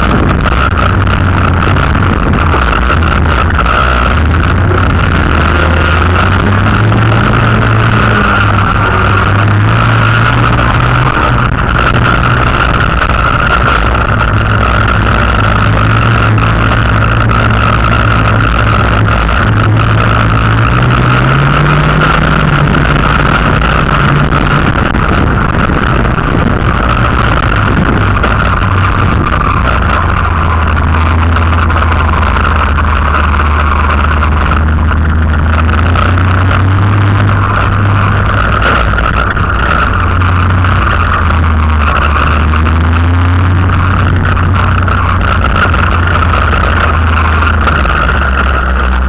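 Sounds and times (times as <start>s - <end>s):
race car engine revving: 0.0s - 49.0s.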